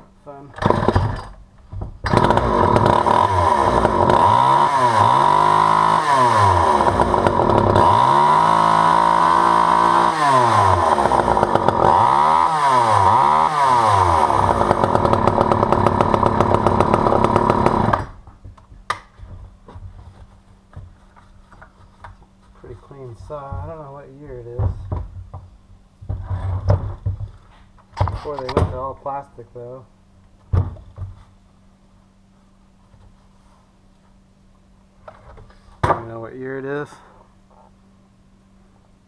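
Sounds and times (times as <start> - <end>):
chainsaw revving: 0.6 - 1.3, 2.0 - 18.2.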